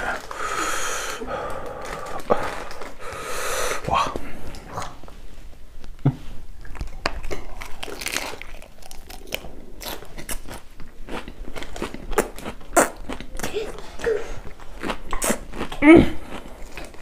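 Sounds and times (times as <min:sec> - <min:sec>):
crunchy biting and chewing: 0:06.6 - 0:13.8, 0:14.4 - 0:17.0.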